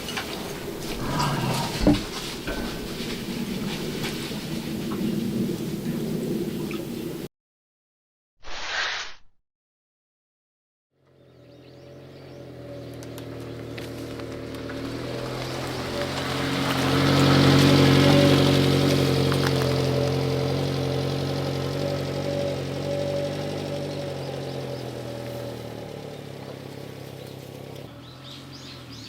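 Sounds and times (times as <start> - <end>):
vehicle passing by: 0.0 - 7.3, 11.0 - 29.0.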